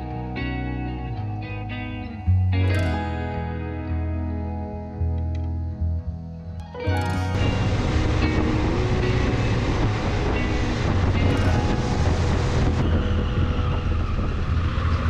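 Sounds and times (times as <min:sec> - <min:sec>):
wind noise on microphone: 0:07.0 - 0:15.0.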